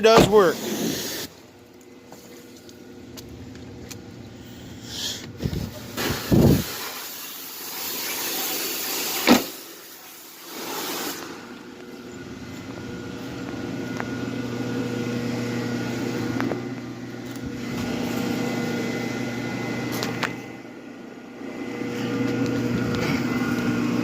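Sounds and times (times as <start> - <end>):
motor humming: 8.5 - 24.0.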